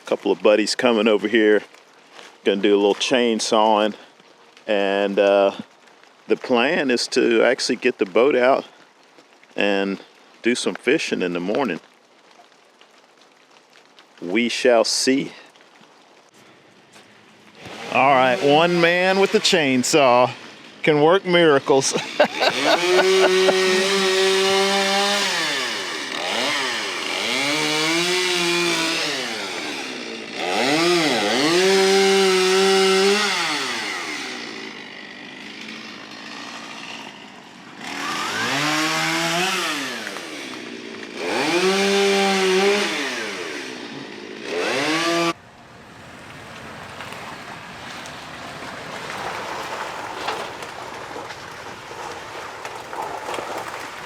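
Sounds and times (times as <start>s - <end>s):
chainsaw revving and cutting: 17.5s - 20.8s, 21.6s - 45.4s.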